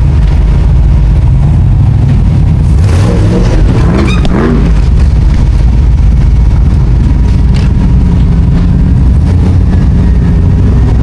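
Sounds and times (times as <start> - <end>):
vehicle engine running at low revs: 0.0 - 11.0.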